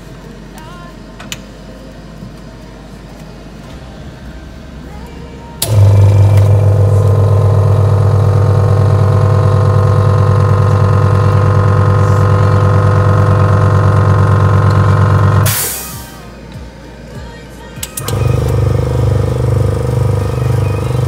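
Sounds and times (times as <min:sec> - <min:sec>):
electric motor humming: 0:03.7 - 0:15.5, 0:18.0 - 0:21.0.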